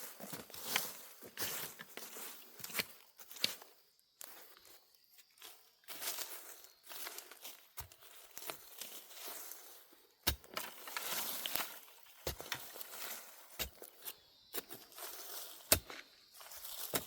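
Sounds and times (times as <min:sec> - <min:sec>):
dry plants rustling and tearing: 0:06.0 - 0:17.0.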